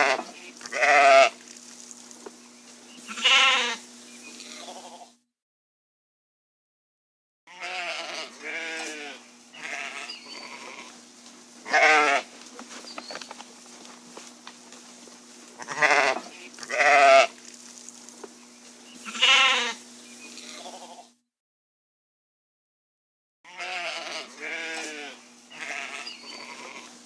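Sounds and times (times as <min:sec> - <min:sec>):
sheep bleating: 0:00.0 - 0:01.4, 0:03.0 - 0:03.8, 0:04.5 - 0:05.2, 0:07.5 - 0:11.0, 0:11.6 - 0:12.3, 0:15.6 - 0:17.4, 0:19.0 - 0:19.8, 0:20.4 - 0:21.2, 0:23.5 - 0:27.0
faint steady hum: 0:00.0 - 0:05.2, 0:07.6 - 0:21.2, 0:23.6 - 0:27.0.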